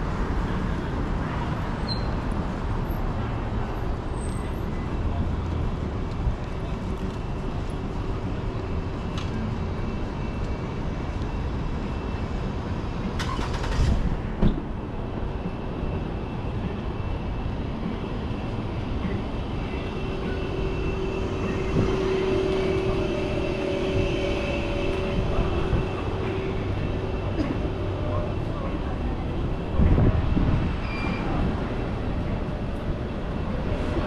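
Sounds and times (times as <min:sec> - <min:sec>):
vehicles rumbling by: 0:00.0 - 0:34.0
steady hum: 0:17.0 - 0:30.6.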